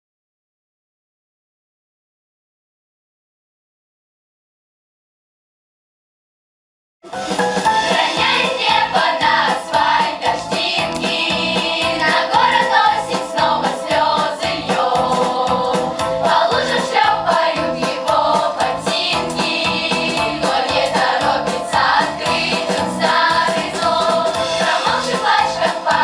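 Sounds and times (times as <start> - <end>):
backing track with steady beat: 7.0 - 26.0
children's choir singing pop song: 7.1 - 26.0.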